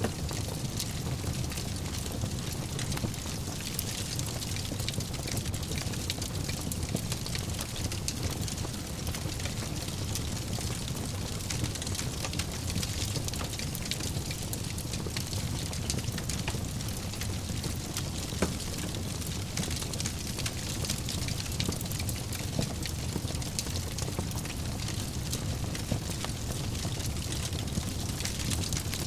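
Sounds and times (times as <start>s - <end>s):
low rush of flames: 0.0s - 9.4s
fire crackling and popping: 0.0s - 29.0s.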